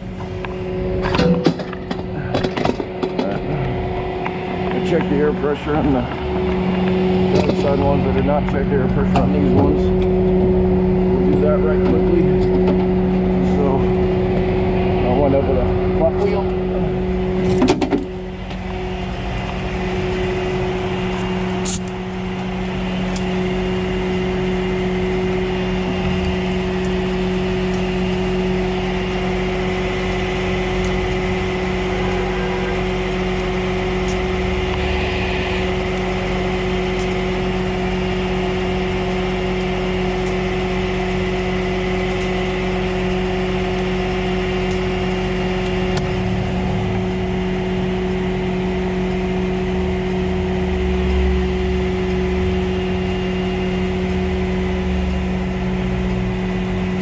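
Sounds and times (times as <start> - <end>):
truck engine droning: 0.0 - 57.0.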